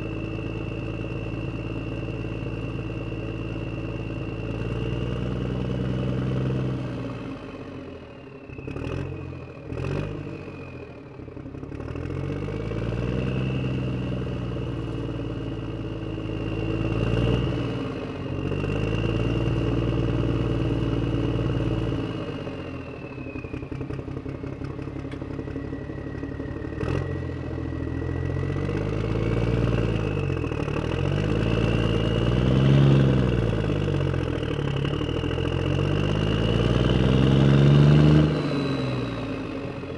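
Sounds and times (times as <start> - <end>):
engine revving: 8.5 - 10.7, 11.6 - 22.9, 25.1 - 39.9.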